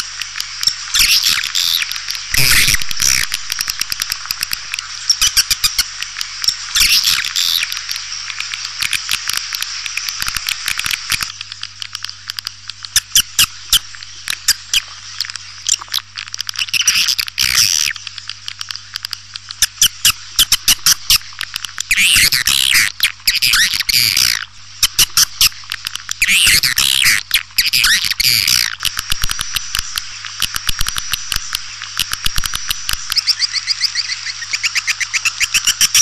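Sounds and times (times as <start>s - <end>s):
swiftlets twittering: 2.3s - 5.8s.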